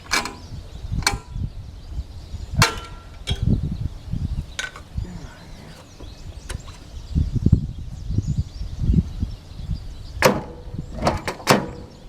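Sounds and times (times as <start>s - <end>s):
lawn tractor engine cranking: 0.0s - 1.4s, 4.4s - 7.0s
sharp engine cracks: 0.0s - 1.4s, 4.4s - 7.0s.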